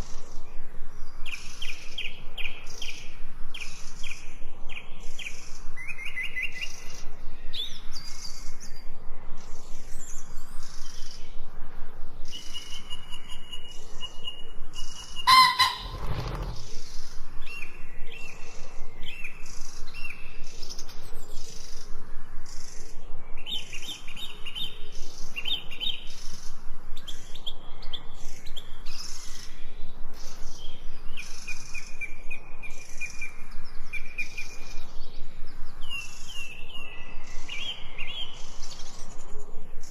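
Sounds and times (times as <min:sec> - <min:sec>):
small birds chirping and trilling: 0:00.0 - 0:39.9
loud bird call: 0:15.1 - 0:16.8.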